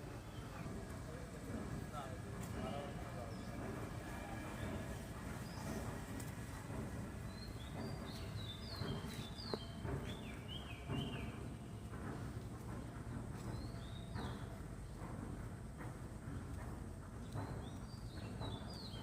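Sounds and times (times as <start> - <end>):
small birds chirping: 7.3 - 11.5.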